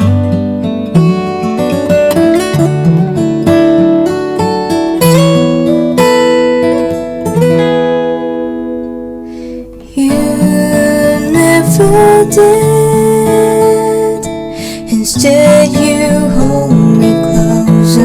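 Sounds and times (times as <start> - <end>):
acoustic guitar ballad: 0.0 - 18.0.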